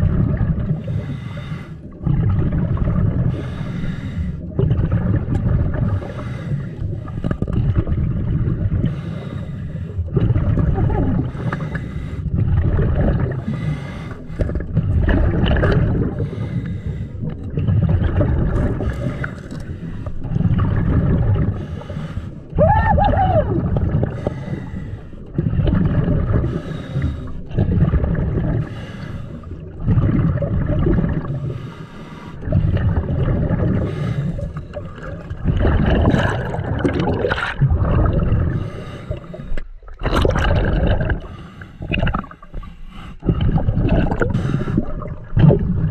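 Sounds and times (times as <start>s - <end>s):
bubbles gurgling underwater: 0.0s - 31.8s, 32.4s - 45.9s
diver breathing through regulator: 0.7s - 2.0s, 3.2s - 4.6s, 5.8s - 7.4s, 8.8s - 10.2s, 11.2s - 12.5s, 13.2s - 15.2s, 16.0s - 17.5s, 18.6s - 20.4s, 21.4s - 22.6s, 24.0s - 27.6s, 28.5s - 29.7s, 31.2s - 34.9s, 38.3s - 39.8s, 41.0s - 45.2s.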